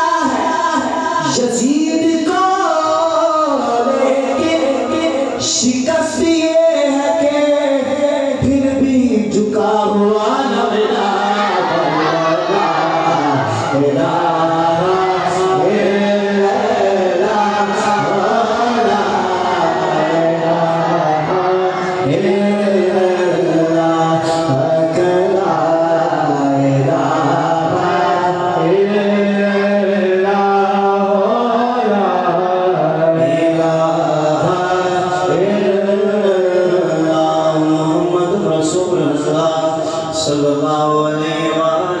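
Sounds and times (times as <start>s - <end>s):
man chanting melodically: 0.0s - 42.0s
voices chanting long notes: 10.8s - 23.7s.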